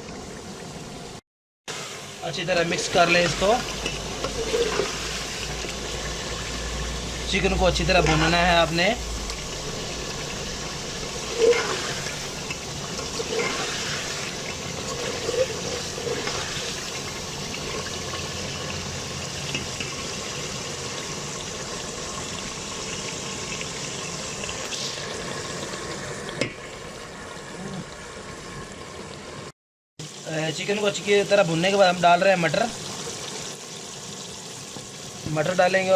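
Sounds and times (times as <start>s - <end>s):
chicken sizzling in a pot: 0.0s - 35.9s
spoon scraping a pot: 3.0s - 5.4s, 11.2s - 16.9s.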